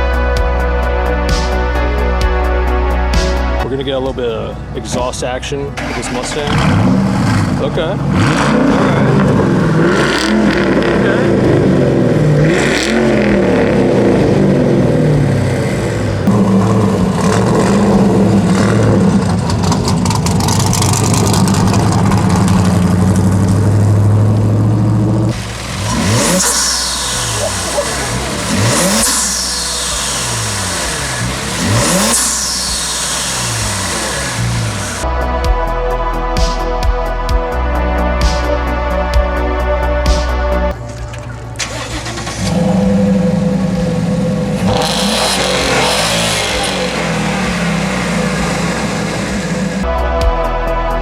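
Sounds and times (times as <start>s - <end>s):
car exhaust rumbling: 0.0s - 35.7s, 37.6s - 51.0s
car engine revving: 4.5s - 35.2s, 39.6s - 50.0s.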